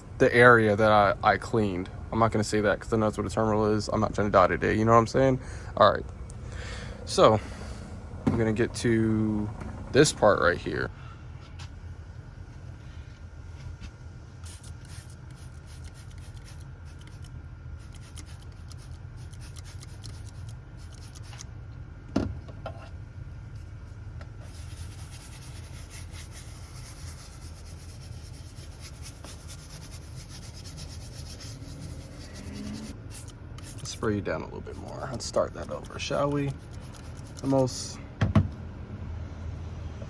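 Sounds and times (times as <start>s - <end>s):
steady low hum: 0.0s - 40.0s
scrubbing scratchy strokes: 14.5s - 21.4s, 24.4s - 37.8s.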